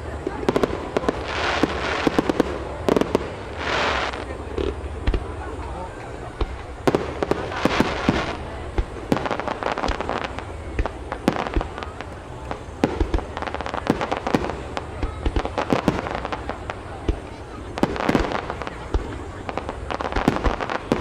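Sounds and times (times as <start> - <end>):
fireworks bangs and pops: 0.0 - 21.0.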